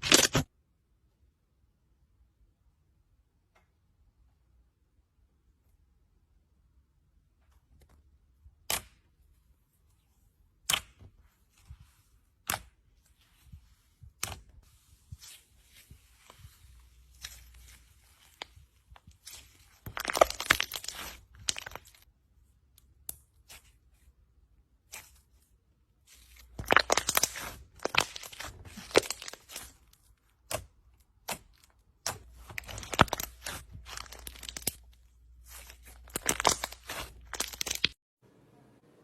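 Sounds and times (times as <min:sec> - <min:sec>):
slime crackling: 0:13.7 - 0:22.0, 0:26.2 - 0:38.0.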